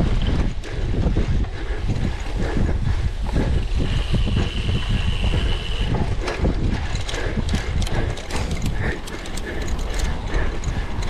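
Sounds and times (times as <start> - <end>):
bike rattling over rough ground: 0.0 - 11.0.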